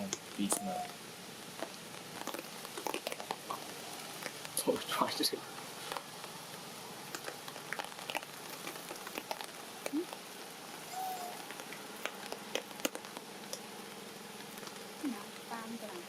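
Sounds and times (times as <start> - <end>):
short faint calls: 0.0 - 1.0, 10.8 - 12.5
rain hissing: 0.0 - 16.0
raindrops tapping on surfaces: 0.0 - 16.0.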